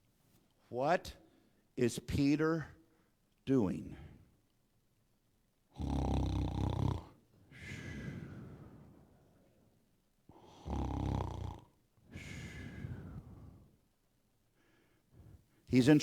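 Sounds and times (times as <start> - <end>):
loud snoring: 5.7 - 8.4, 10.4 - 13.4.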